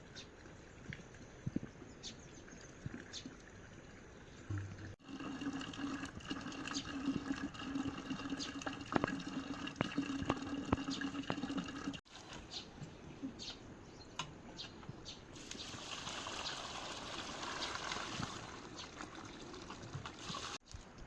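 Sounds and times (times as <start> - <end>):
drips and splashes: 0.0 - 12.5, 15.4 - 20.8
water running: 2.8 - 12.4, 15.4 - 20.6.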